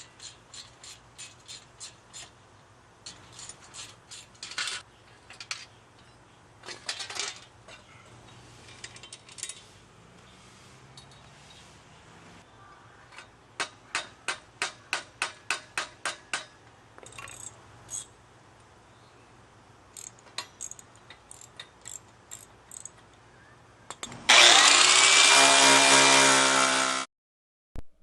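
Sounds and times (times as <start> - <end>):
angle grinder grinding metal: 24.3 - 27.1.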